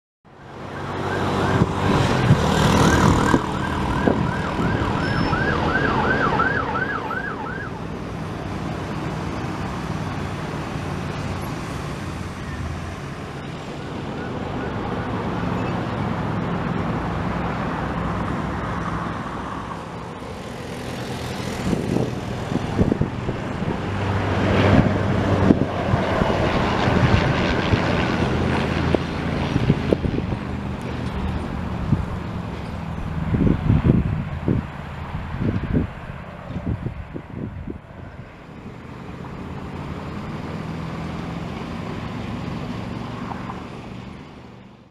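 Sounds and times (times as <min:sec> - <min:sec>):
road traffic: 0:00.2 - 0:44.9
siren yelping: 0:00.3 - 0:08.0, 0:14.0 - 0:15.6
noisy gusts: 0:00.3 - 0:44.8
engine drone: 0:00.3 - 0:44.9.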